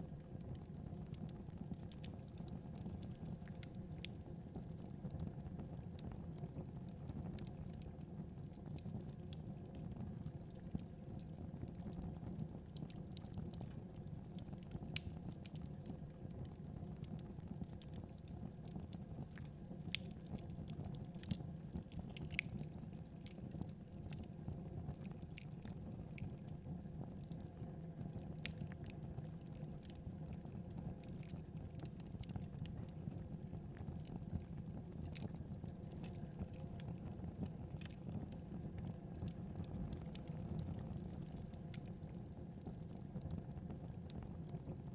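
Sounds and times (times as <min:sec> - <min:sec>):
fire popping and snapping: 0:00.1 - 0:44.8
wood fire rumbling: 0:12.4 - 0:44.8.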